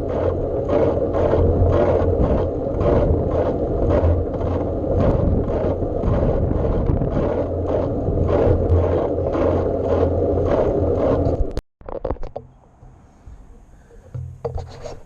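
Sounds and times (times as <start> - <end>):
wind rushing over microphone: 0.0 - 11.6.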